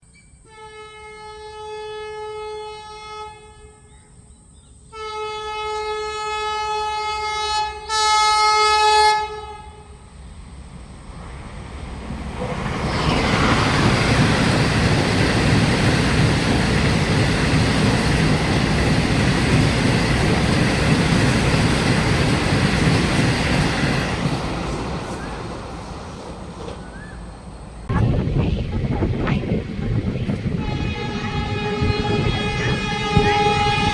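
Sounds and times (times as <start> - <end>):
train horn blasts: 0.4 - 4.0, 4.9 - 10.2, 30.1 - 33.9
train passing at high speed: 6.8 - 33.9.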